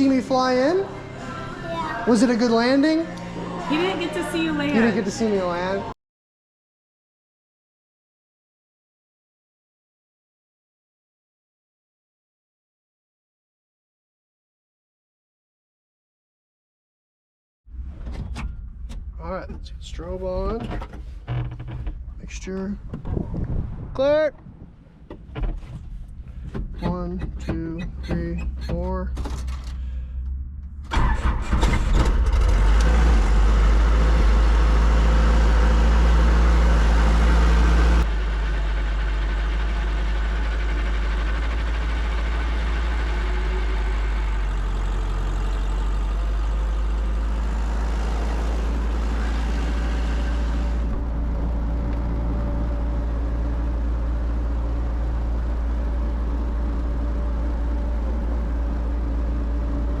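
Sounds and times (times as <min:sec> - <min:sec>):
helicopter engine starting and idling: 0:26.0 - 1:00.0.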